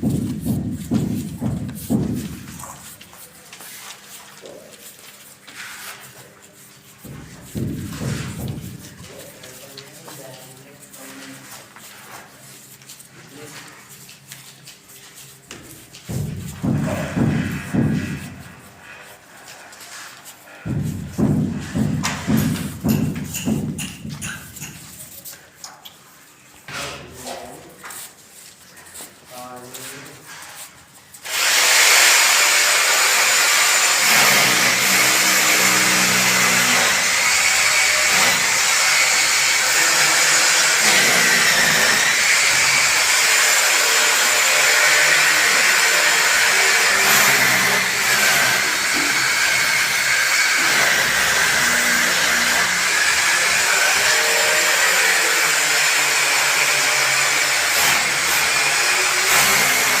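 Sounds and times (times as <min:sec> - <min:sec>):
power tool whining: 0:31.3 - 1:00.0.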